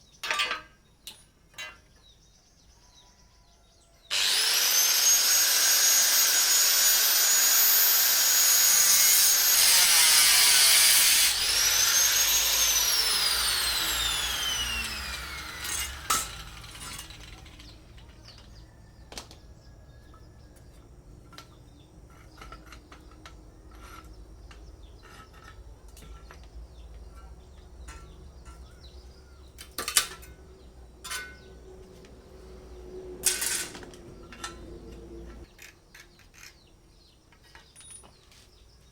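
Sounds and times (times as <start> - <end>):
angle grinder whining: 4.1 - 18.0.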